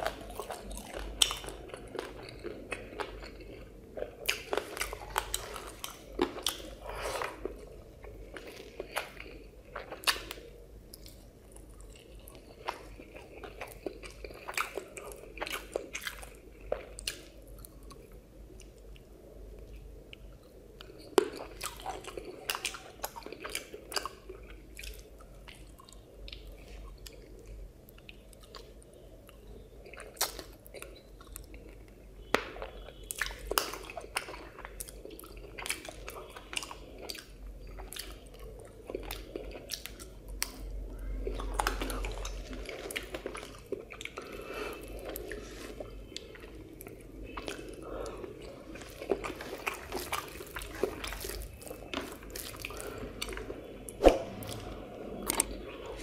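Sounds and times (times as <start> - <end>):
chewing and biting food: 0.0 - 18.8, 20.8 - 56.0
crunching: 47.3 - 56.0.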